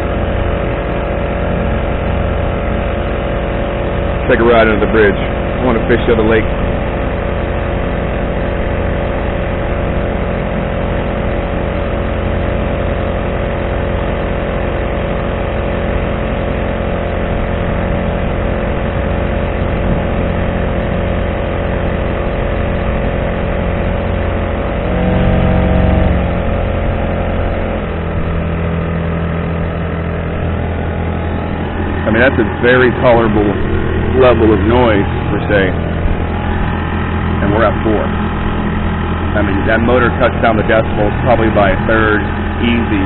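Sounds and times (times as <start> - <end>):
outboard motor running: 0.0 - 43.0.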